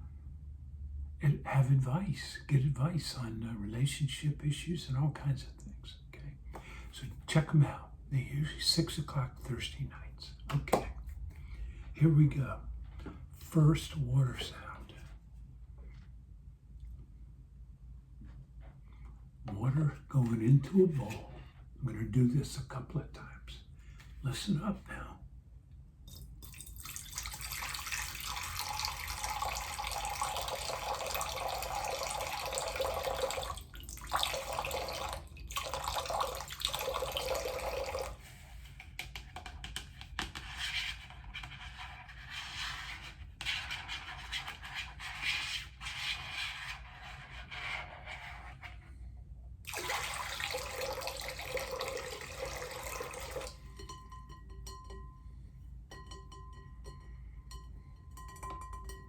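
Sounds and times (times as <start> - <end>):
water pouring into a bowl: 26.1 - 38.3, 49.7 - 53.6.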